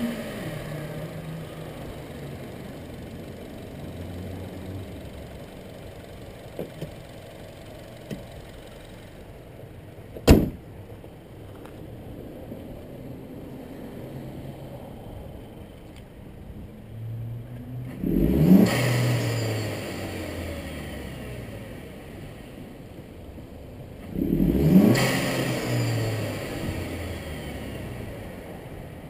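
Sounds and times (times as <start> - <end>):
car engine revving: 0.0 - 9.0, 16.8 - 22.6, 24.0 - 29.0
car engine idling: 0.0 - 18.2
car hood slamming shut: 10.2 - 10.7.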